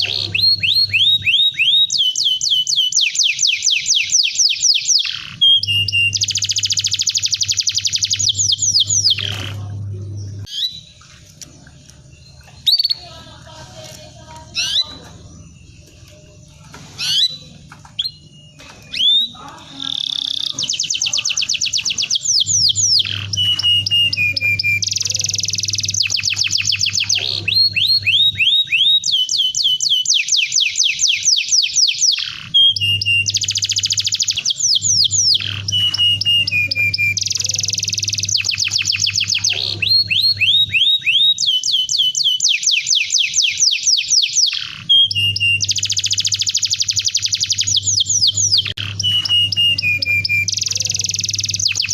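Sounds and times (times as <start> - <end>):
canary singing: 0.0 - 51.9
low hum: 5.2 - 28.5.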